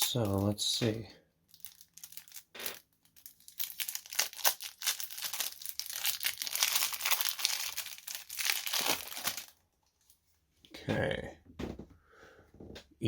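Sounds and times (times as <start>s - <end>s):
plastic wrapping tearing and crinkling: 0.0s - 9.6s.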